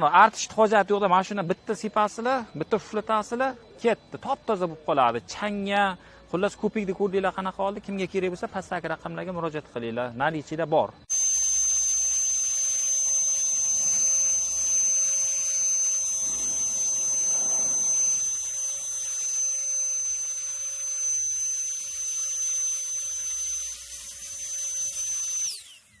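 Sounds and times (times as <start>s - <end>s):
jet blower whining: 11.1s - 26.0s.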